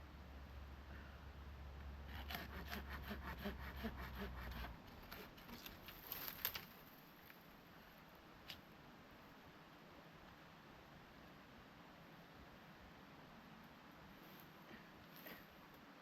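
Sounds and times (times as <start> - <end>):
hand saw cutting wood: 2.1 - 5.8.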